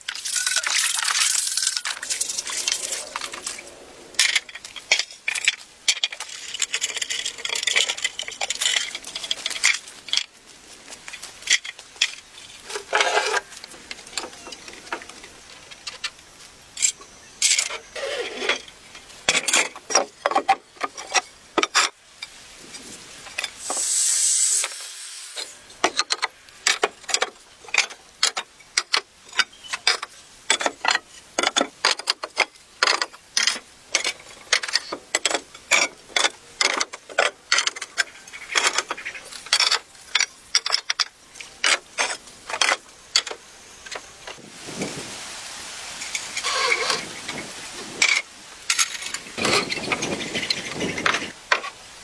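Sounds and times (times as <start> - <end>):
brief hiss: 23.6 - 25.6.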